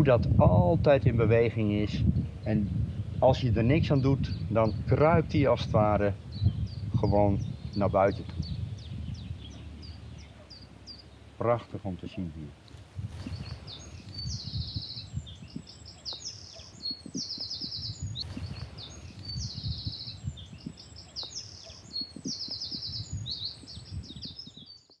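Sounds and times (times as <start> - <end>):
songbird singing with trills: 2.0 - 11.4, 12.1 - 25.0.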